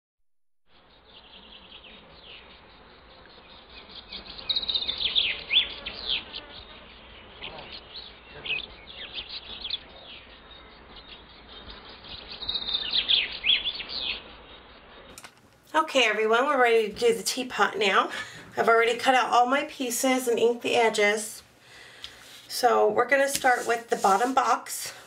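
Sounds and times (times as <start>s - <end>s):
birds chirping: 0.7s - 25.0s.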